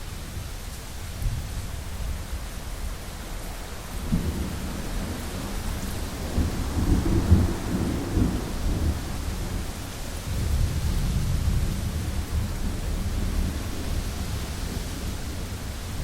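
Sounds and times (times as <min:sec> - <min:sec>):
steady rain hiss: 0:00.0 - 0:16.0
thunder rumbling: 0:03.8 - 0:16.0.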